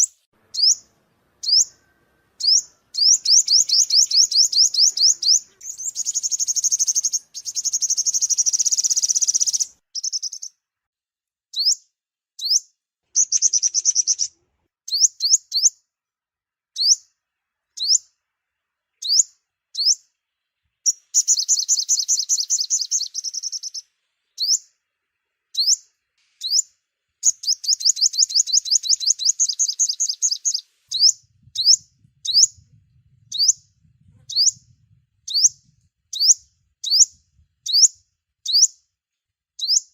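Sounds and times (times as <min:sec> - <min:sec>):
sunbird high rapid trills: 0:00.0 - 0:10.5, 0:20.8 - 0:24.8, 0:25.5 - 0:32.6.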